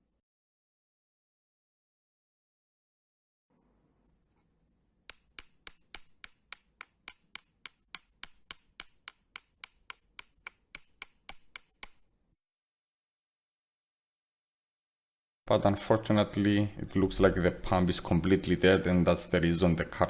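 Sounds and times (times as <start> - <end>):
hammer tapping metal pump: 5.1 - 12.0.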